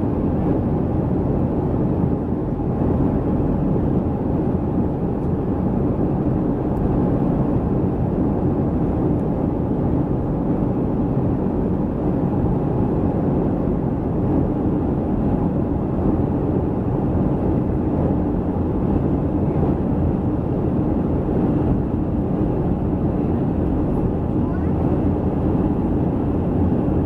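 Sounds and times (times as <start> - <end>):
airliner cabin engine rumble: 0.0 - 27.0.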